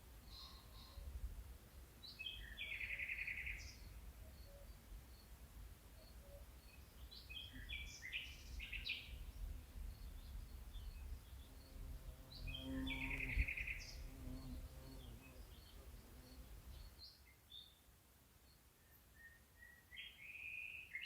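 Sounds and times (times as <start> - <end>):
birds chirping and trilling: 9.9 - 17.1.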